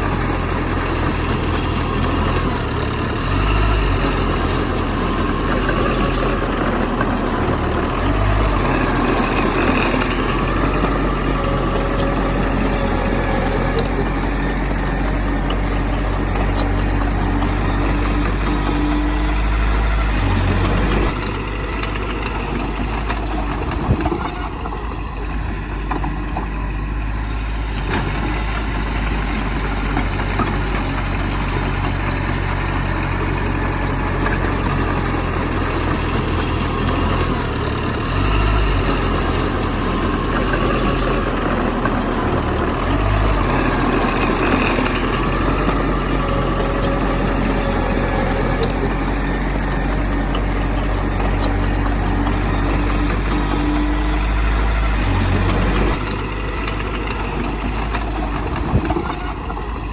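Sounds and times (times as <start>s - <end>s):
heavy diesel machinery running: 0.0s - 59.9s.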